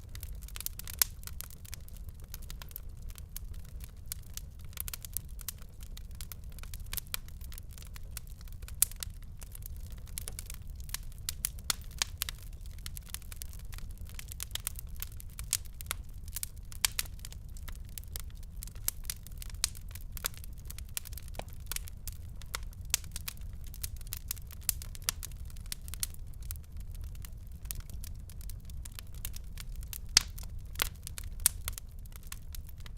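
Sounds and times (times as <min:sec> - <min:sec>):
fire crackling and popping: 0:00.0 - 0:32.9
low rumble of flames: 0:00.0 - 0:32.9.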